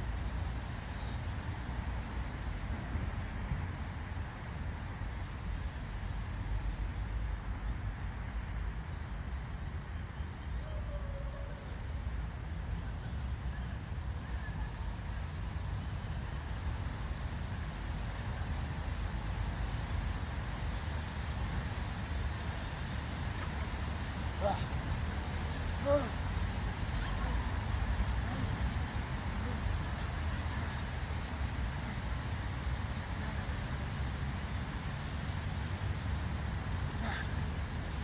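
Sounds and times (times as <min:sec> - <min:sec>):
faint short call: 0:22.0 - 0:32.0.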